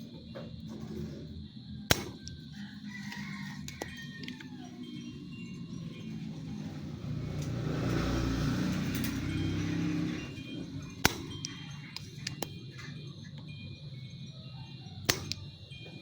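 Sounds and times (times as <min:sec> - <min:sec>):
sharp click: 0:01.9 - 0:02.4, 0:15.1 - 0:15.4
vehicle passing by: 0:05.6 - 0:11.8.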